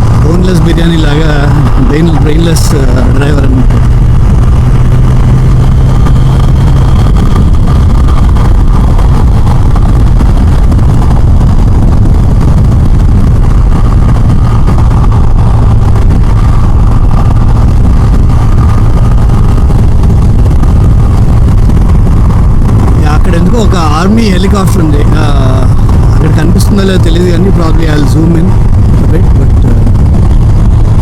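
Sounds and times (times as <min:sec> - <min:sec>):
motorcycle engine hum: 0:00.0 - 0:31.0
road noise: 0:00.0 - 0:31.0
wind noise: 0:00.0 - 0:31.0.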